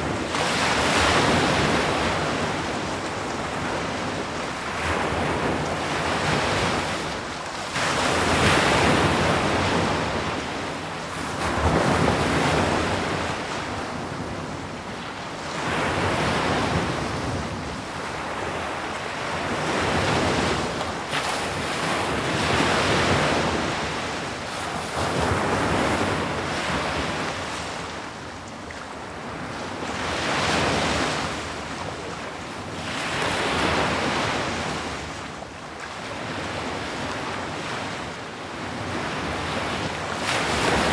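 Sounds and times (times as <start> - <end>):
ocean waves breaking on shore: 0.0 - 40.9.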